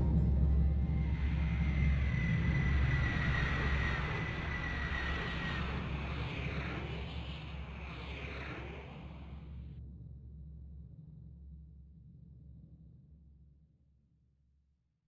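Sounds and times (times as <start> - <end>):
high squeal: 0.0 - 9.4
train rumbling: 0.0 - 9.6.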